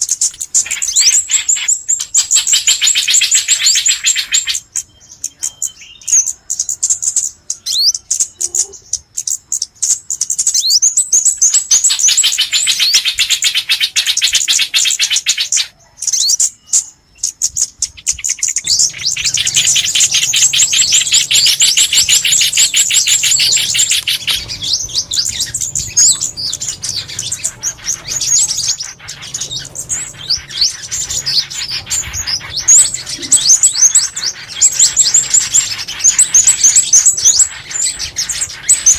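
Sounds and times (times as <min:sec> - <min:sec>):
small songbirds chirping: 0:00.0 - 0:38.9.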